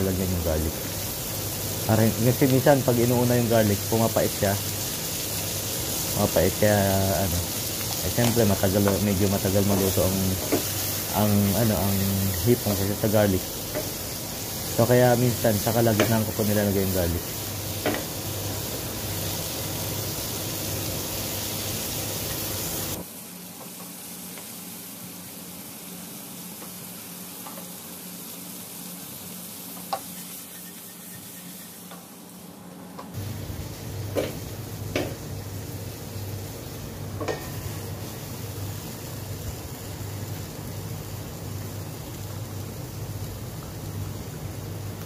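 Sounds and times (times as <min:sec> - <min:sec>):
shrimp sizzling in a pan: 0:00.0 - 0:32.4, 0:33.2 - 0:45.0.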